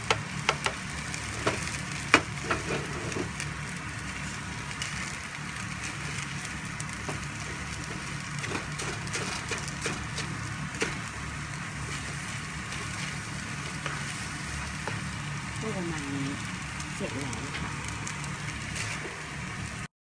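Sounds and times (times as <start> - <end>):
food sizzling in a frying pan: 0.0 - 19.9
steady low hum: 0.0 - 19.9
spatula scraping and tapping a pan: 0.1 - 0.8, 1.4 - 3.3, 7.0 - 11.0.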